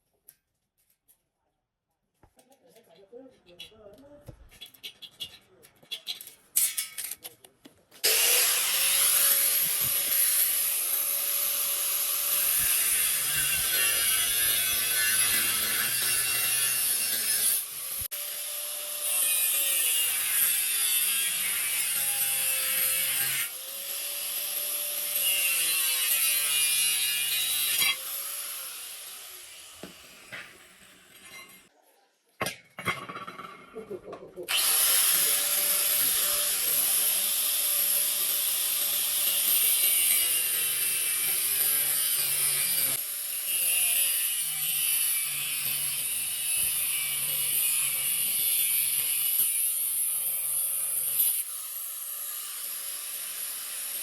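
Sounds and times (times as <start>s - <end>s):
power tool grinding: 8.0s - 31.7s, 34.5s - 54.0s.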